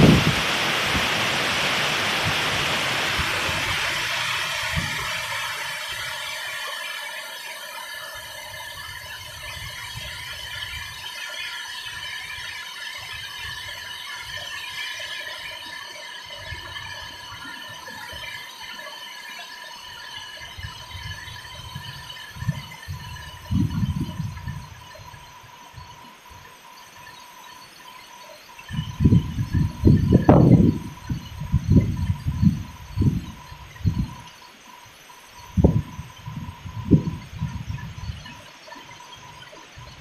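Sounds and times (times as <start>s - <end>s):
wind gusts rumbling on microphone: 0.0s - 6.7s, 8.2s - 11.2s, 20.4s - 26.5s, 28.6s - 34.3s, 35.4s - 40.0s
steady high squeal: 0.0s - 40.0s
storm rain and wind: 0.0s - 40.0s.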